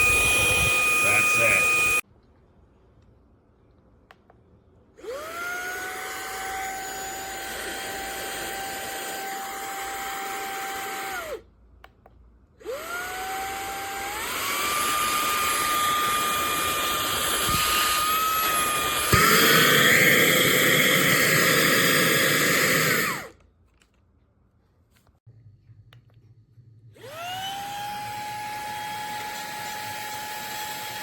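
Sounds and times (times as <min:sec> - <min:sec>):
handheld vacuum whine: 0:00.0 - 0:02.0, 0:05.0 - 0:11.4, 0:12.6 - 0:23.4, 0:27.0 - 0:31.0.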